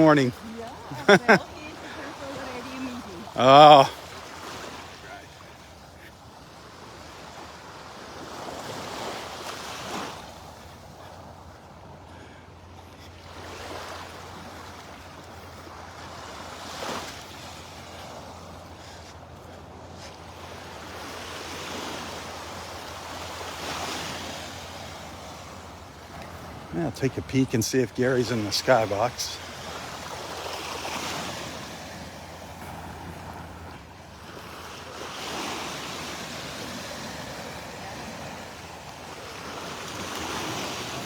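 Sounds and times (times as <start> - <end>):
surf breaking on beach: 0.0 - 5.2, 21.0 - 41.0.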